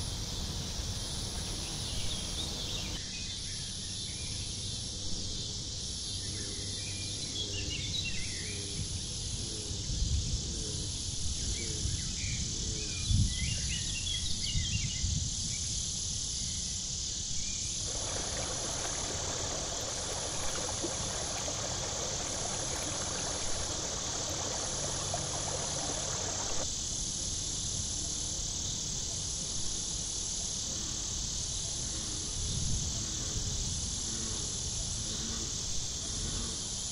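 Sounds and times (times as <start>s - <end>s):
high insect chorus: 0.0s - 36.9s
rushing noise: 17.8s - 26.6s.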